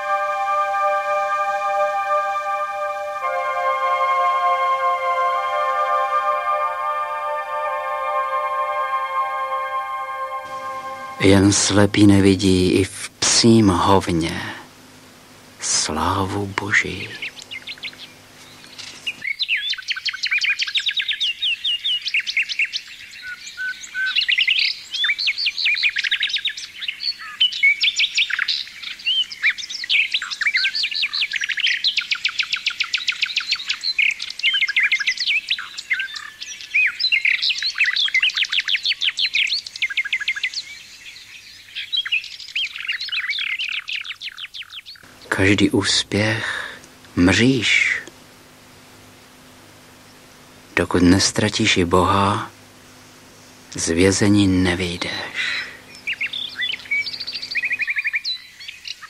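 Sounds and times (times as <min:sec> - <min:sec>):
bird chirps and trills: 0:16.4 - 0:45.3, 0:52.8 - 0:59.0.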